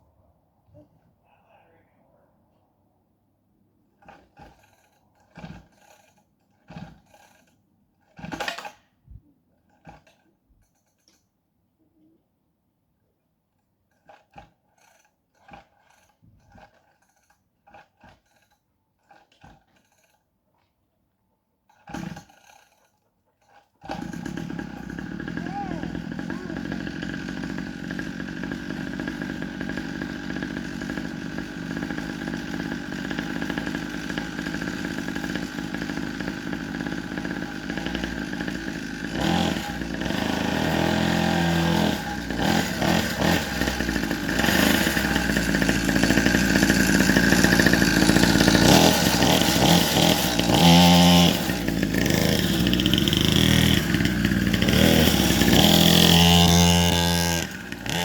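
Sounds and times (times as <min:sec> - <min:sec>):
dirt bike engine revving: 0:23.9 - 0:58.0.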